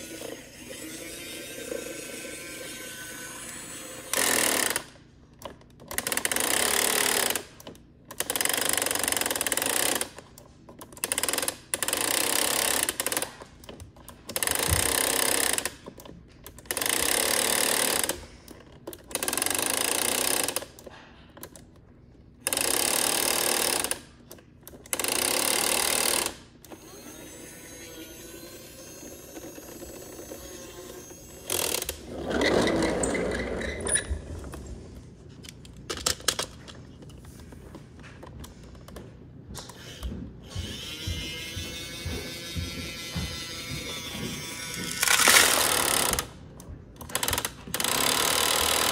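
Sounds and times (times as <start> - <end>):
toy motor and gears whirring: 0.0 - 5.0, 24.7 - 34.1, 39.7 - 46.3.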